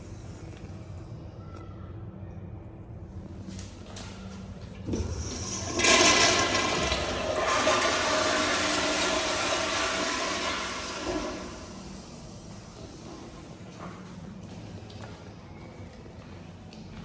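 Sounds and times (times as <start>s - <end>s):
toilet flush click: 4.9s - 12.6s
toilet water rushing: 4.9s - 13.1s.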